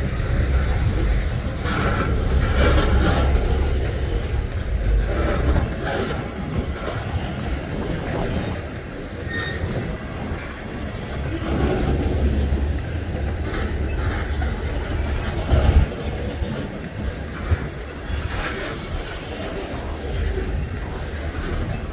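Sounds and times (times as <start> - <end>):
freight train wheels rumbling: 0.0 - 21.9
high wheel squeal: 9.2 - 10.4.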